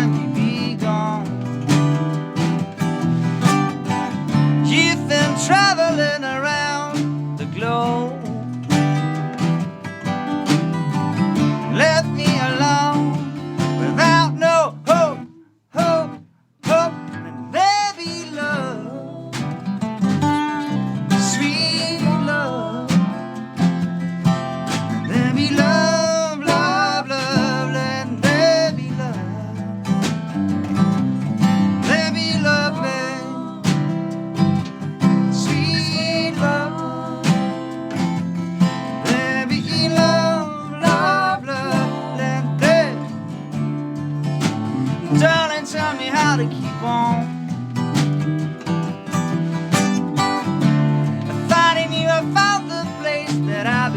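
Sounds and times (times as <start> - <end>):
person singing: 0.0 - 1.4, 4.5 - 8.9, 11.6 - 23.4, 25.0 - 29.7, 31.8 - 43.5, 44.8 - 47.4, 49.4 - 53.9
strummed acoustic guitar: 0.0 - 53.9.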